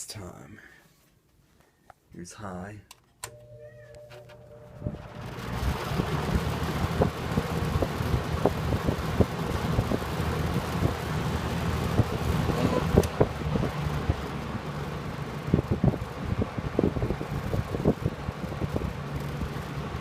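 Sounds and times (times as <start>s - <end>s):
low motor hum: 3.3s - 20.0s
box fan air rushing: 4.4s - 20.0s
wind buffeting microphone: 15.1s - 20.0s.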